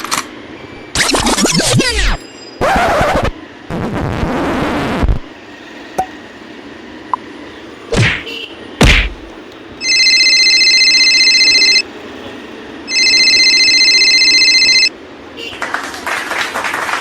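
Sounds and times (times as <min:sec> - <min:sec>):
electronic ringing tone: 0:09.8 - 0:11.9, 0:12.9 - 0:14.9.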